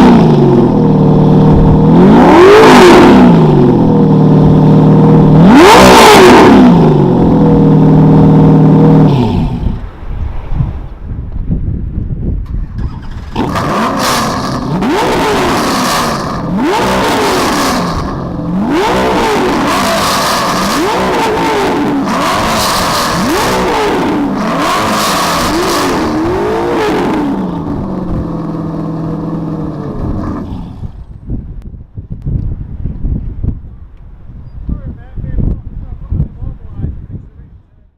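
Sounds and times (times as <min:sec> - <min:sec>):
car engine idling: 0:00.0 - 0:09.9, 0:12.7 - 0:31.2
car engine revving: 0:00.0 - 0:10.0, 0:12.6 - 0:31.2.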